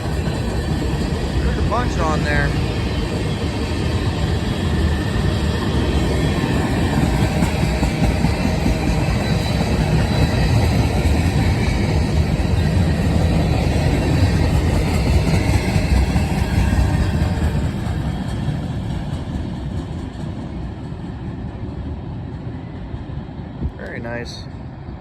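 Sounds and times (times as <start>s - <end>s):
freight train rolling on rails: 0.0s - 25.0s.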